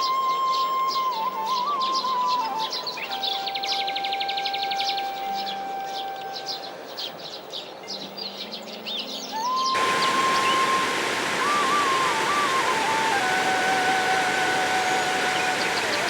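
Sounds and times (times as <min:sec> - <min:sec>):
small birds chirping: 0:09.8 - 0:16.0
steady rushing noise: 0:09.8 - 0:16.0
wavering whistling tone: 0:09.8 - 0:16.0.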